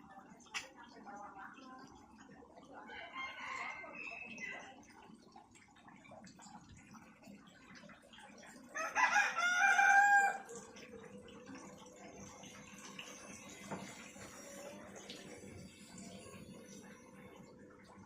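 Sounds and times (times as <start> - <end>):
rooster crowing: 8.8 - 10.5.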